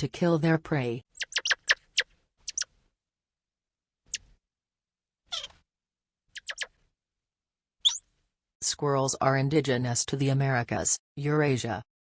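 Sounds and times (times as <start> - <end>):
small animal squeaking: 1.1 - 2.7, 4.1 - 4.4, 5.3 - 5.6, 6.3 - 6.8, 7.8 - 8.1.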